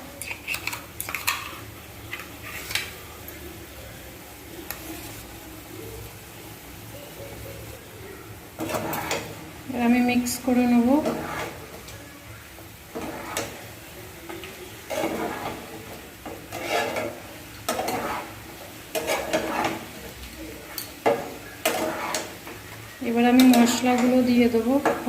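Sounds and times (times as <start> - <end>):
faint sizzle: 0.0 - 25.0
utensil scraping a pan: 0.2 - 3.0, 8.6 - 9.4, 10.4 - 11.9, 12.9 - 25.0.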